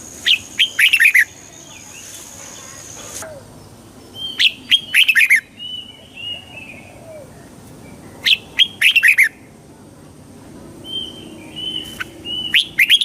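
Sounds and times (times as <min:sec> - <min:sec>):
bird singing chirping notes: 0:00.2 - 0:03.4, 0:04.0 - 0:06.9, 0:10.8 - 0:13.0.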